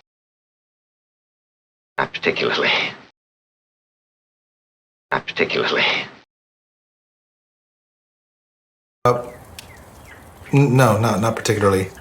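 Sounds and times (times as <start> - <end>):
quiet background noise: 9.1 - 12.0.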